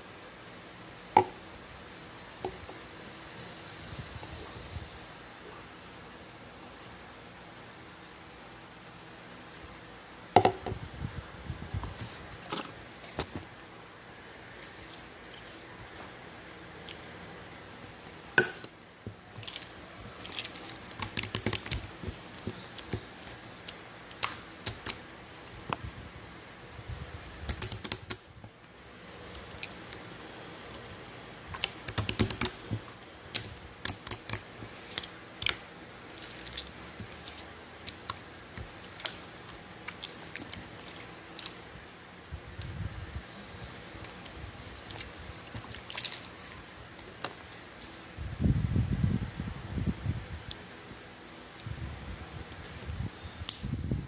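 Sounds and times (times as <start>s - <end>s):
steady background hiss: 0.0s - 54.0s
sharp clicks and taps: 27.5s - 28.2s, 31.6s - 34.4s.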